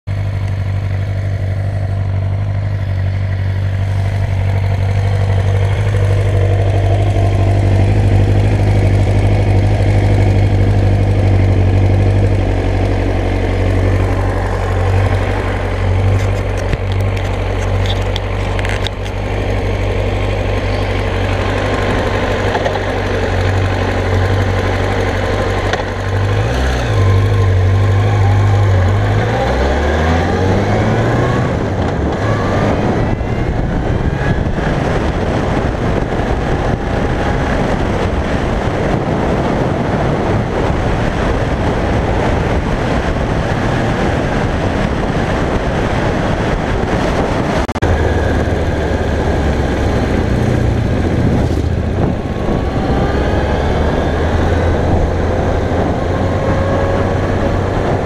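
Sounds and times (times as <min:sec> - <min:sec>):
motorcycle engine idling: 0:00.1 - 0:26.4.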